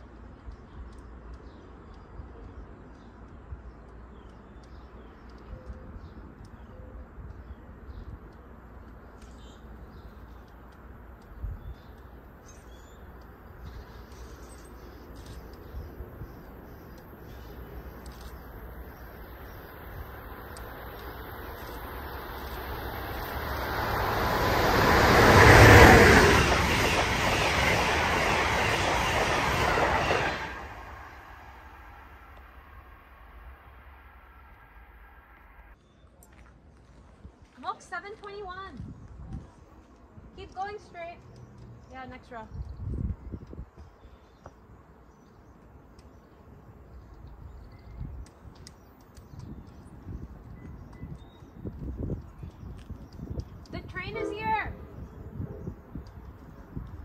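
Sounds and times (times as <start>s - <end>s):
small birds chirping: 0.3s - 23.6s, 40.4s - 57.0s
train passing by: 12.0s - 35.8s, 50.2s - 57.0s.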